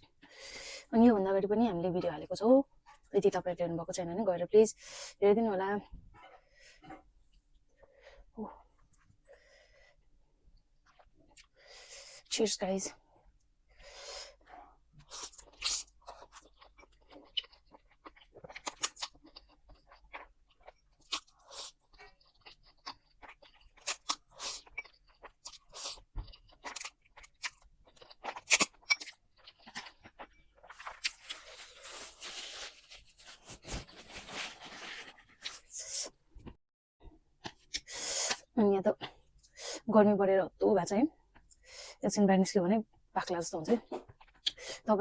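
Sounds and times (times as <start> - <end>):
chewing and crunching food: 10.8 - 12.3, 13.2 - 39.6, 41.1 - 41.7, 43.7 - 44.8.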